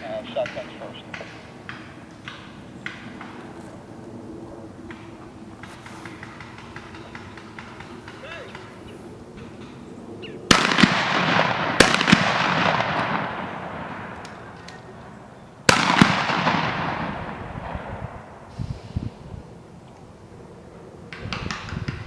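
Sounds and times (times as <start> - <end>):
sharp cracks: 0.0 - 3.9, 4.7 - 18.5
rolling echo: 0.0 - 19.5
shotgun blasts: 10.5 - 15.0, 15.7 - 18.4.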